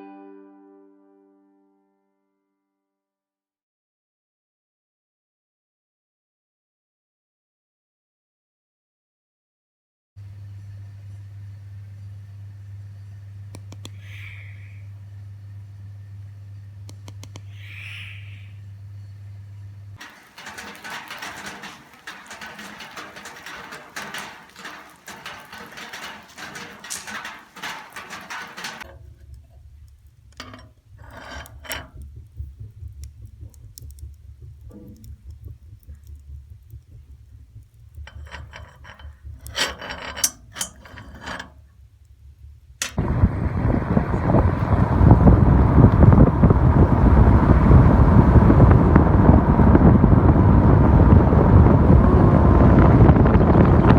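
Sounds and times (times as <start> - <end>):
low hum: 10.2 - 53.9
clicking and rattling: 20.0 - 41.8, 42.8 - 43.0
wind on microphone: 30.7 - 39.5, 42.4 - 53.9.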